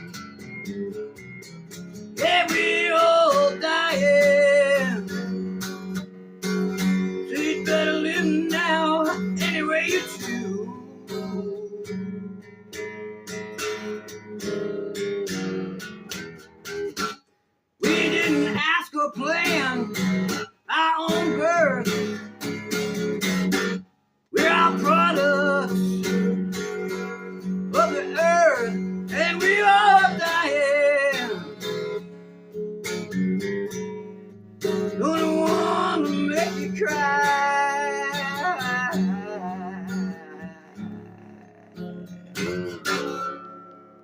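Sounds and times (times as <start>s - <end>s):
acoustic guitar blues: 0.0s - 44.0s
man singing wordlessly: 2.1s - 5.2s, 7.2s - 12.4s, 17.8s - 22.2s, 24.3s - 31.6s, 34.6s - 43.2s.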